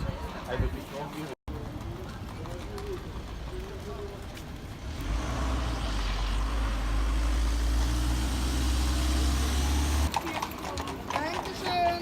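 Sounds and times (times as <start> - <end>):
vehicle engine rumbling: 1.5 - 11.1.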